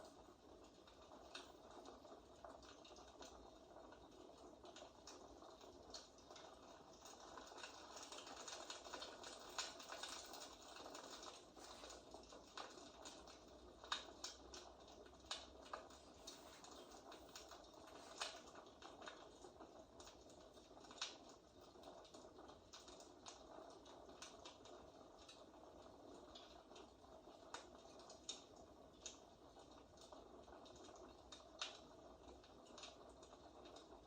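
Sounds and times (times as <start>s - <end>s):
fireplace crackling: 0.0s - 21.8s.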